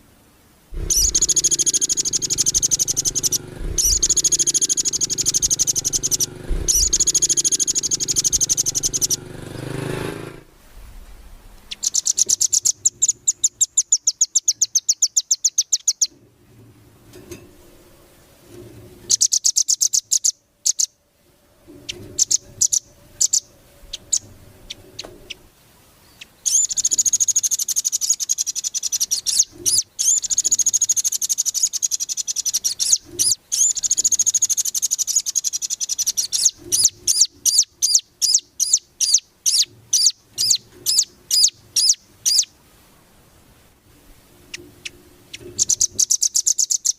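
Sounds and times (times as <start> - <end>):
bird chipping notes: 0.7 - 10.4, 11.7 - 16.2, 21.7 - 42.5, 44.5 - 46.9
songbird trilling: 0.8 - 9.8, 11.7 - 16.2, 19.1 - 21.0, 21.8 - 25.4, 26.0 - 42.5, 44.5 - 46.9.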